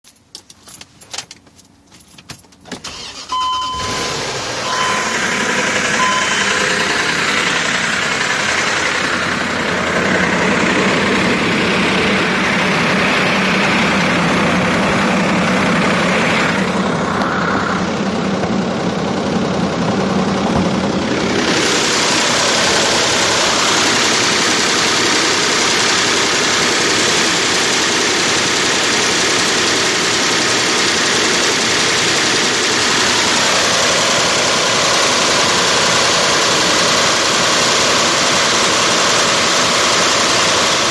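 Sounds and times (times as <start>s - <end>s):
car engine idling: 0.7s - 40.9s.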